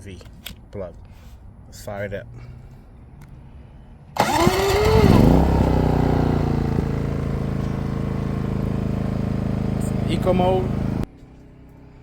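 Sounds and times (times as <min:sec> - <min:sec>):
generator engine starting and running: 0:04.1 - 0:12.0.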